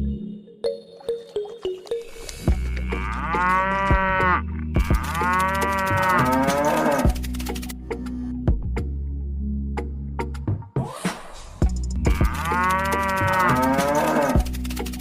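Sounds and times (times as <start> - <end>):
cow mooing: 2.6 - 7.2, 12.1 - 14.4.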